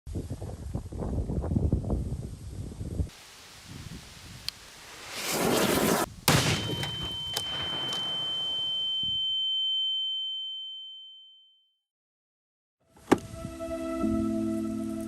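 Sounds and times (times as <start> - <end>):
crackle after bang: 4.9 - 8.6
firecracker bang: 5.0 - 8.7
high ringing tone: 6.4 - 11.7.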